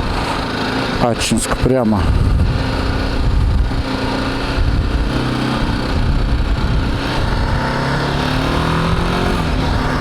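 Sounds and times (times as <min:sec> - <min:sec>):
motorcycle engine running: 0:00.0 - 0:10.0
wind rumble on microphone: 0:02.0 - 0:10.0.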